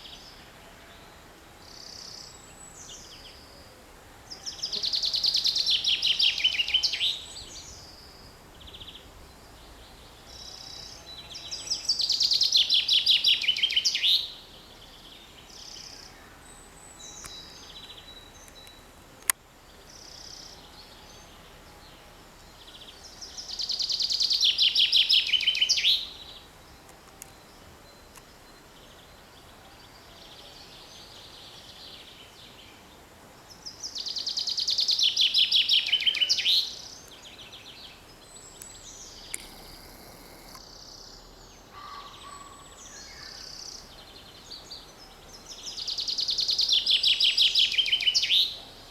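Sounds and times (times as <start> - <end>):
chaffinch singing: 4.3 - 21.5, 22.4 - 32.2, 33.5 - 48.9
other birds calling: 35.9 - 43.9.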